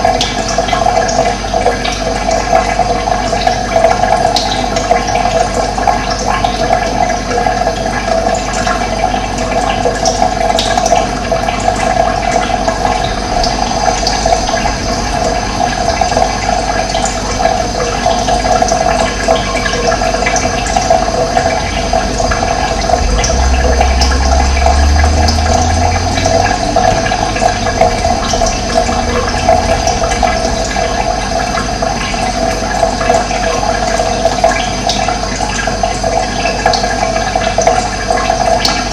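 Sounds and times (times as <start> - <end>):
running water: 0.0 - 38.9
low rumble: 11.8 - 19.0, 19.6 - 34.5.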